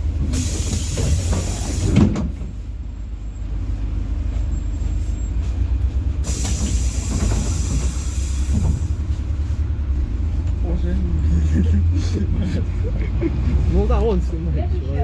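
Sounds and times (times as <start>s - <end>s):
bus engine droning: 0.0s - 15.0s
hiss: 0.3s - 2.1s, 6.2s - 8.9s.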